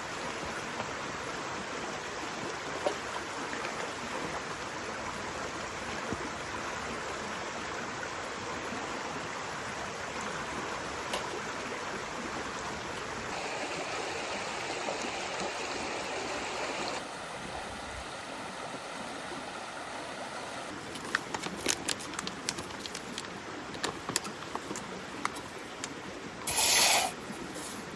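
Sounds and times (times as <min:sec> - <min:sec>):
rain hissing: 0:13.3 - 0:18.2, 0:26.4 - 0:27.9.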